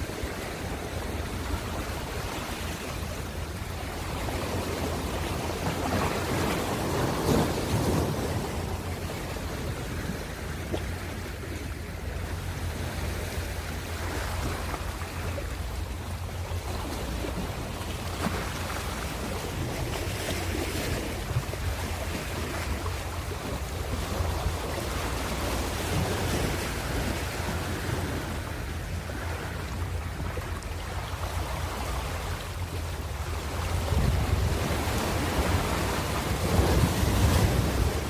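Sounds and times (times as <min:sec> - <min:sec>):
ocean waves breaking on shore: 0:00.0 - 0:38.0
wind buffeting microphone: 0:33.0 - 0:38.0.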